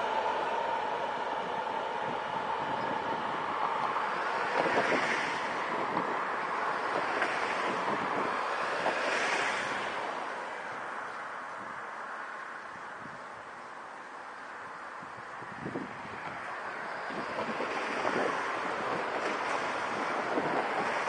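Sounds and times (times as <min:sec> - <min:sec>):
wind on microphone: 0:00.0 - 0:10.2, 0:15.0 - 0:21.0
train wheels rumbling on rail: 0:00.0 - 0:13.0, 0:13.8 - 0:21.0.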